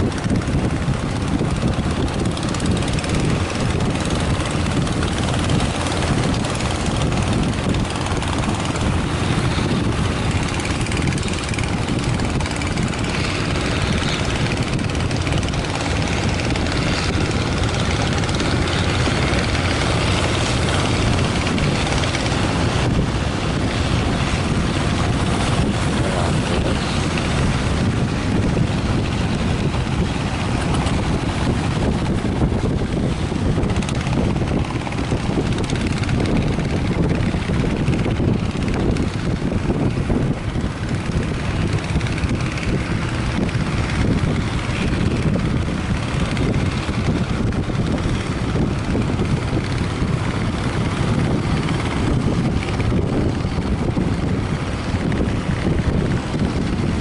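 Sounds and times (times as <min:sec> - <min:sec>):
strong wind buffeting microphone: 0:00.0 - 0:57.0.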